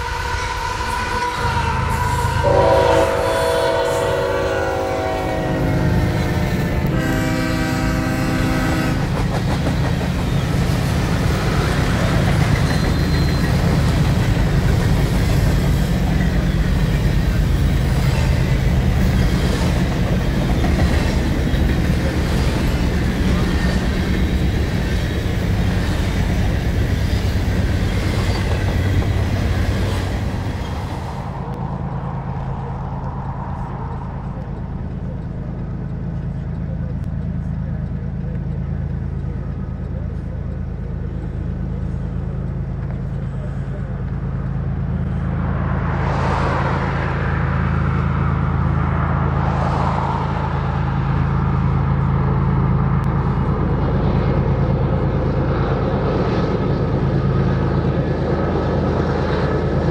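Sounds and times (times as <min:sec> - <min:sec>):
wheels clacking on rail: 0:00.0 - 0:46.7
freight train rumbling past: 0:00.0 - 0:59.9
locomotive horn blasts: 0:01.1 - 0:09.2.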